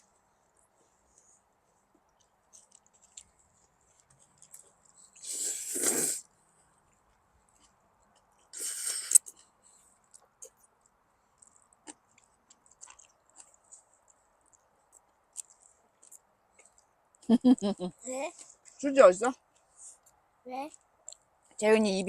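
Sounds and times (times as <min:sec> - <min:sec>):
chewing smacks: 0:02.0 - 0:05.2, 0:11.4 - 0:16.9.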